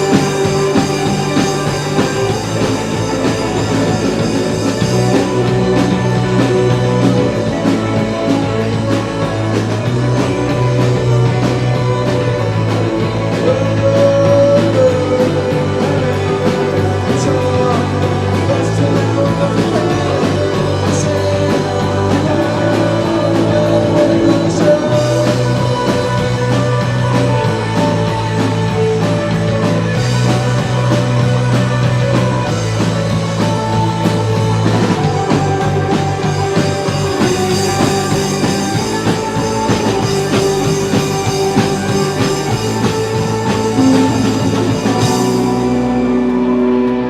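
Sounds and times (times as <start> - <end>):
rock band playing live: 0.0 - 47.0.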